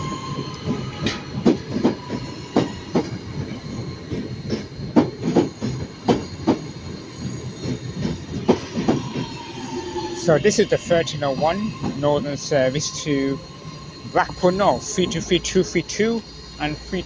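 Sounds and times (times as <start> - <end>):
train wheels clickety-clack: 0.0 - 9.4
wheels squealing: 0.0 - 16.8.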